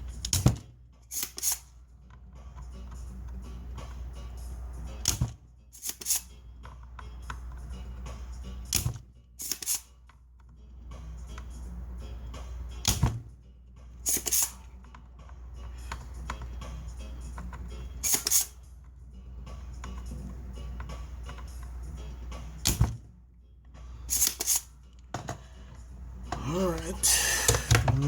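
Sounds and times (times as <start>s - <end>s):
sharp click: 18.0s - 18.6s.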